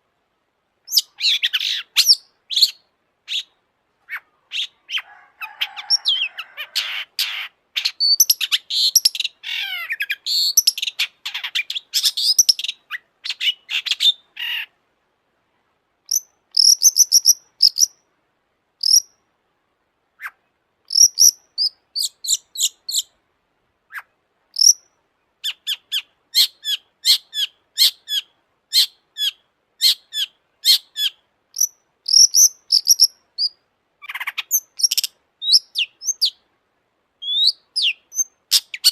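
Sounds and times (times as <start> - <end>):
bird singing: 5.7 - 14.7, 16.1 - 18.0, 18.8 - 19.2, 20.2 - 23.1, 23.9 - 36.4, 37.2 - 38.9.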